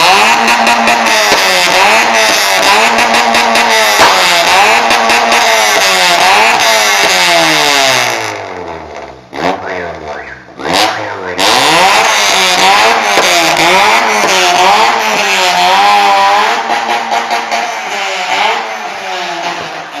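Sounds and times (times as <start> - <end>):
engine revving through loud exhaust: 0.0 - 20.0.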